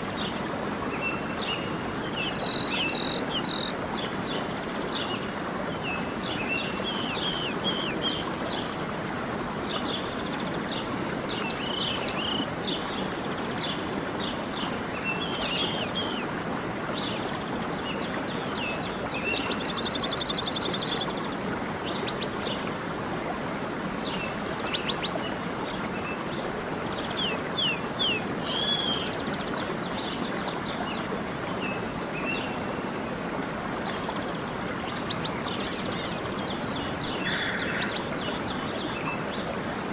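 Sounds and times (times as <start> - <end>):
stream flowing: 0.0 - 39.9
songbirds chirping: 24.0 - 39.9.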